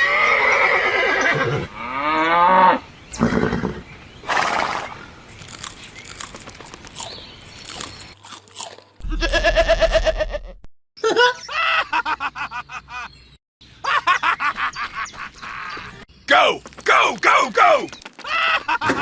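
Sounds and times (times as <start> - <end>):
horse whinnying: 0.0 - 1.8
short crunching noises: 5.3 - 10.1, 16.4 - 19.0.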